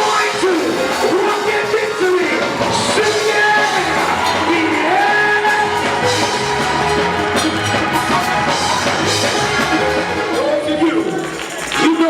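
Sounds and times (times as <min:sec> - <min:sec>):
drum kit beat: 0:00.0 - 0:12.0
sustained held chords: 0:01.9 - 0:10.4.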